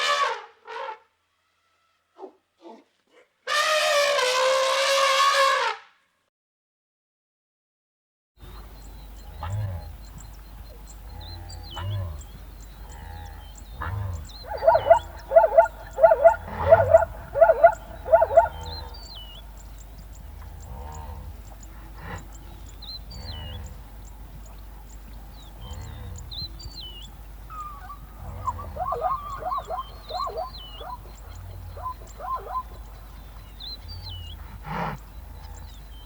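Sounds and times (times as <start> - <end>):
faint high chirping: 8.4 - 34.4
animal calling loudly: 13.8 - 19.4, 27.5 - 33.0.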